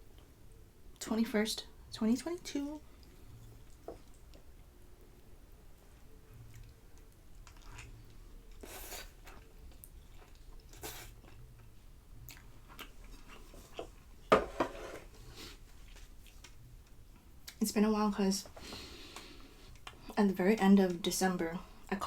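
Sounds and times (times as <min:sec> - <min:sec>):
chewing food: 0:06.1 - 0:14.1.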